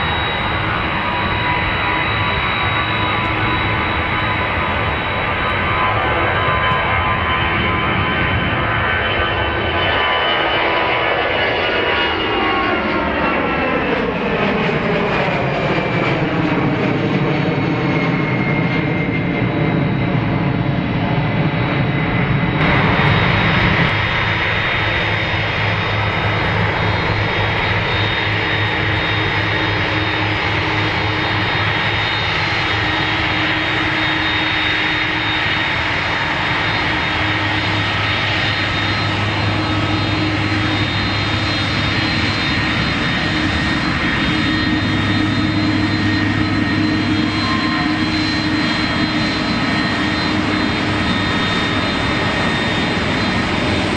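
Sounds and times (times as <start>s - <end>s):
high-pitched whining tones: 0.0s - 10.6s, 21.7s - 53.9s
airliner engines rushing: 0.0s - 53.9s.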